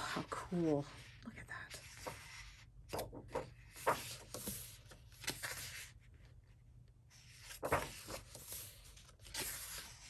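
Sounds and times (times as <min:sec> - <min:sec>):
book pages turning: 0:01.7 - 0:06.4, 0:07.1 - 0:10.0.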